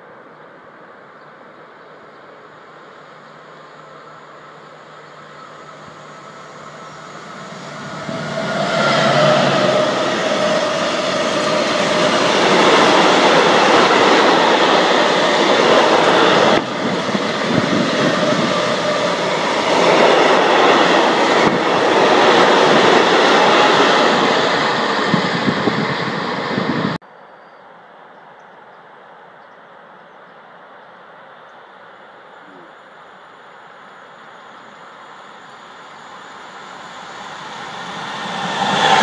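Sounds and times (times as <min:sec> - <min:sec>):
freight train wheels on rails: 0:03.1 - 0:27.0, 0:34.2 - 0:39.0.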